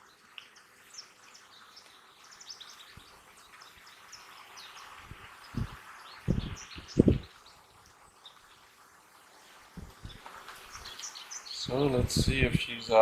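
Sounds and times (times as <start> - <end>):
birds chirping: 0.0 - 13.0
dull low thumps: 5.6 - 7.3.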